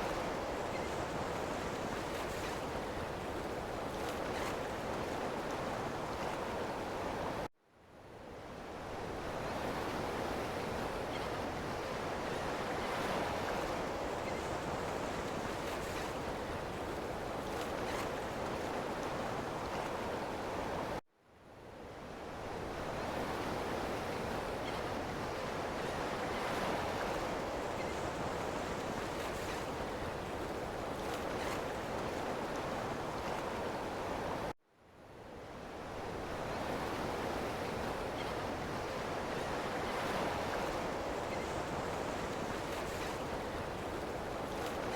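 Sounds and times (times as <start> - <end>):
ocean waves washing onto shore: 22.3 - 34.6, 35.5 - 44.9.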